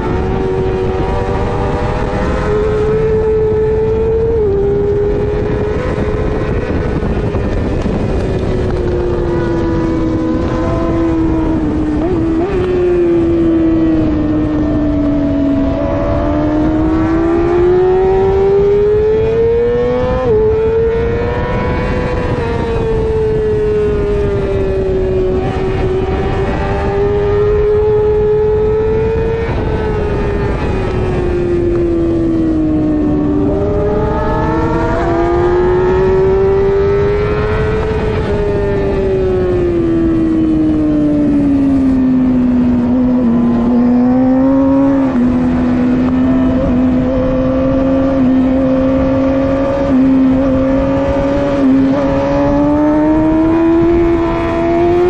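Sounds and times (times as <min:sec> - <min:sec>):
motorcycle engine revving: 0:00.0 - 0:55.0
wind or road noise rush: 0:00.0 - 0:55.0.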